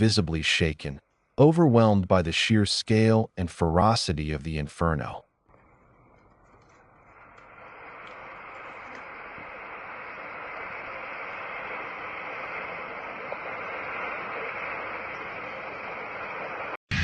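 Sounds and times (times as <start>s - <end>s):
steady rushing noise: 6.9s - 17.0s.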